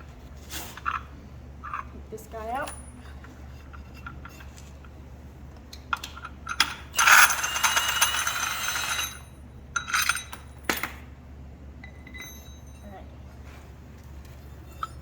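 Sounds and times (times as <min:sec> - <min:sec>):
metal parts clinking: 0:06.0 - 0:10.9
metallic ratcheting rattle: 0:06.1 - 0:09.2.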